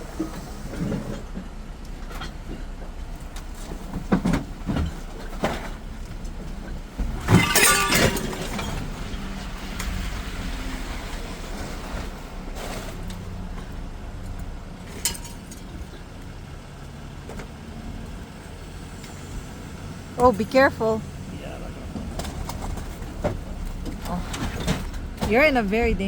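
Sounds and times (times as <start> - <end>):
vehicle engine rumbling: 0.0 - 26.0
loud clattering clinking: 7.2 - 8.9.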